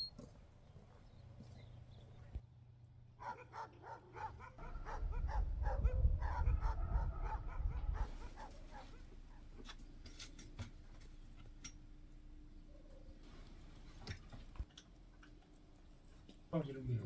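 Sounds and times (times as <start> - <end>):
dog barking and yapping: 3.2 - 9.1.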